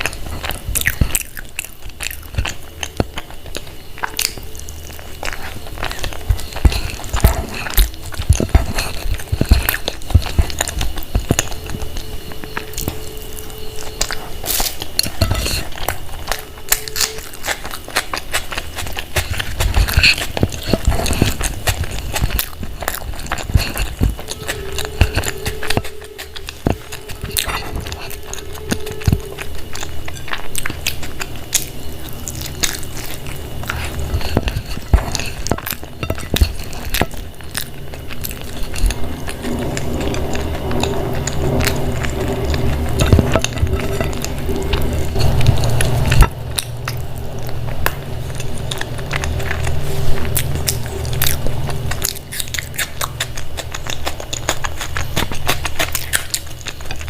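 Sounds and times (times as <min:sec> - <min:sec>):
chewing and biting: 0:00.0 - 0:57.0
tableware clinking: 0:15.0 - 0:15.9.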